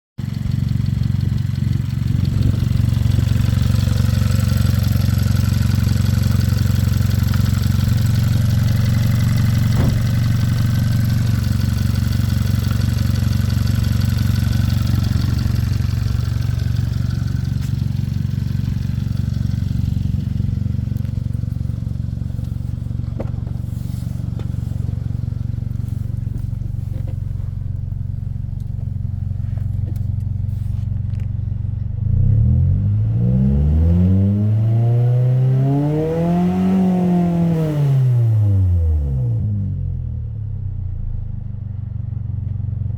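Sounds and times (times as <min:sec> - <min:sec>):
car engine idling: 0:00.2 - 0:32.1.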